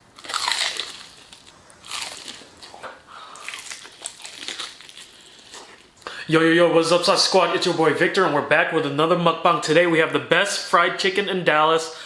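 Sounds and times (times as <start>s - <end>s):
crunchy bites into fried chicken: 0.1s - 5.9s
chewing: 0.2s - 6.1s.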